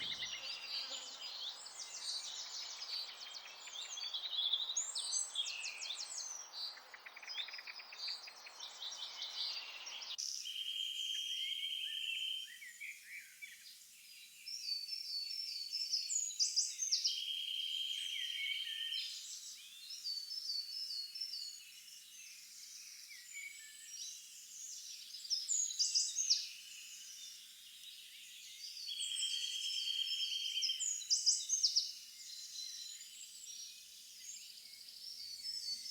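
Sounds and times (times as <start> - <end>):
songbirds chirping and trilling: 0.0 - 35.9.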